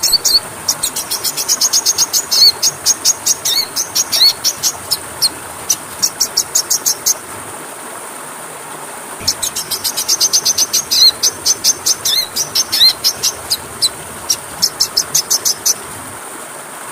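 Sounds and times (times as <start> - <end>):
songbird chipping calls: 0.0 - 7.3, 9.2 - 16.2
steady hiss: 0.0 - 16.9.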